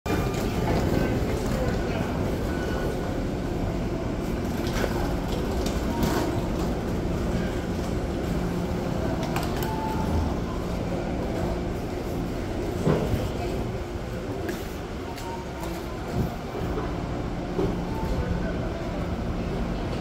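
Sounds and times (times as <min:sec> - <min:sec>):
train rumbling: 0:00.1 - 0:20.0.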